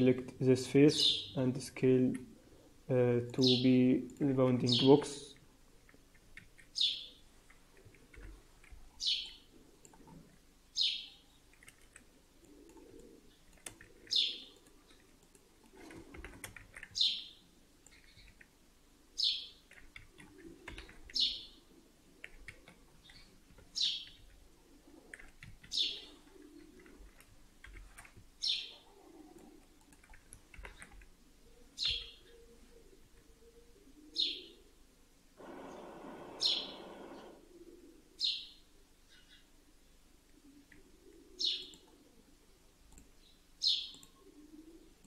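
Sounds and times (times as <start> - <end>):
bird chirping: 0.9 - 1.4, 3.4 - 3.8, 6.7 - 7.2, 9.0 - 9.6, 10.7 - 11.6, 12.9 - 15.0, 16.9 - 18.4, 19.2 - 19.7, 20.3 - 21.6, 23.0 - 24.3, 25.7 - 26.8, 28.4 - 28.9, 30.7 - 34.6, 35.5 - 37.4, 38.2 - 39.5, 41.2 - 42.2, 43.2 - 44.7.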